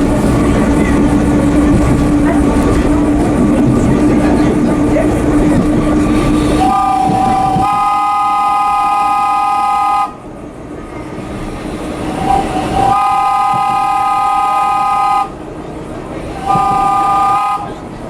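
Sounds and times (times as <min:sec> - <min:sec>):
subway train running: 0:00.0 - 0:18.0
train horn blasts: 0:06.6 - 0:10.2, 0:12.2 - 0:15.4, 0:16.4 - 0:17.8.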